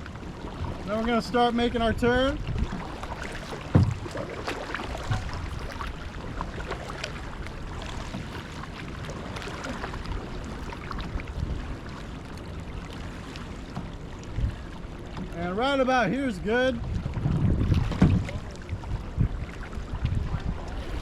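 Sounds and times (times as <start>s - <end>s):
wind rumble on microphone: 0.0s - 12.9s, 13.7s - 15.5s, 16.3s - 21.0s
paddle splashing in water: 0.0s - 15.4s, 16.6s - 21.0s
low thump: 3.6s - 4.2s, 17.3s - 18.4s.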